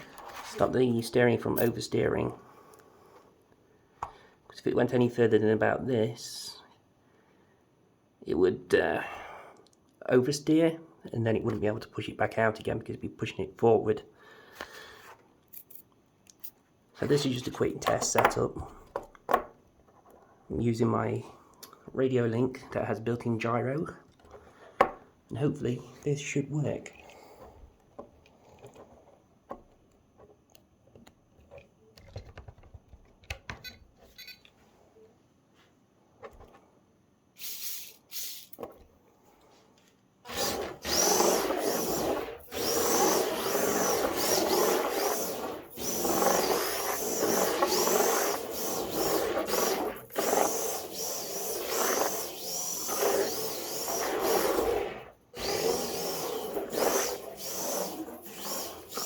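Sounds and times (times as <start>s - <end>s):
small electric motor whining: 40.3s - 59.0s.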